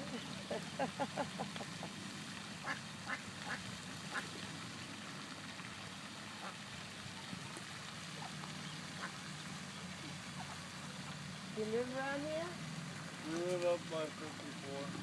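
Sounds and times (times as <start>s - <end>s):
ducks quacking: 0.0s - 4.4s, 6.3s - 6.7s, 8.0s - 12.5s.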